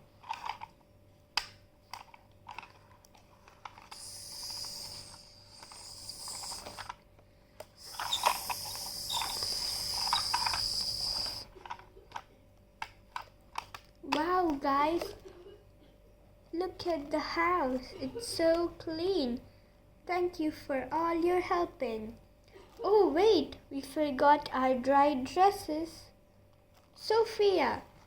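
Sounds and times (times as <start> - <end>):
toy vacuum cleaner whining: 3.7 - 7.0, 7.8 - 11.5.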